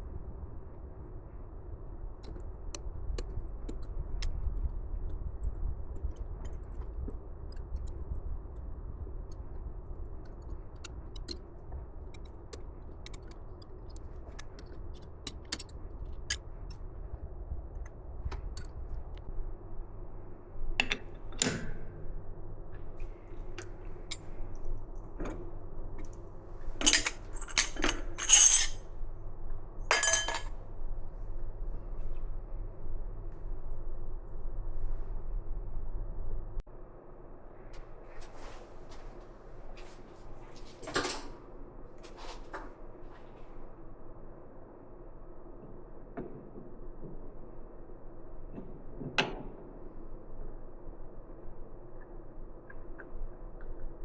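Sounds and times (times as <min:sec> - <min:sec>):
steady low hum: 0:00.0 - 0:54.0
metal tools clinking: 0:26.8 - 0:28.8, 0:29.9 - 0:30.5.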